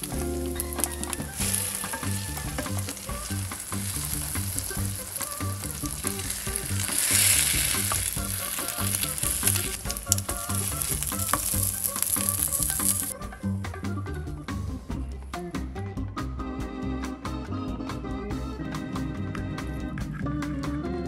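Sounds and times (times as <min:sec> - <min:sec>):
bread sizzling in a pan: 0:00.0 - 0:13.2
spatula scraping a pan: 0:00.0 - 0:13.2
soft background music: 0:00.0 - 0:15.4.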